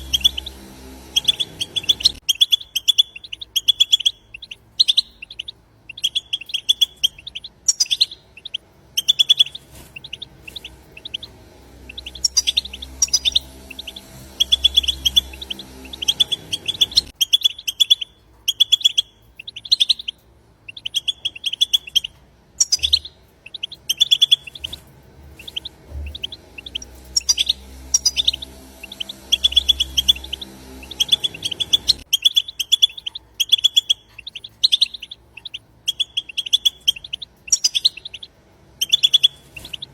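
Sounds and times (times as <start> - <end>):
goldfinches twittering: 0.0 - 39.9
low hum: 0.0 - 39.9.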